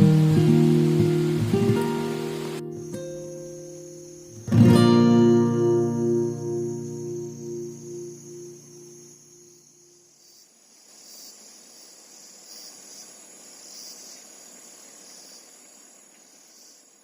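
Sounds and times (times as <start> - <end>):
guitar tune: 0.0 - 9.5
insects trilling: 0.0 - 17.0
soft even hiss: 0.0 - 17.0.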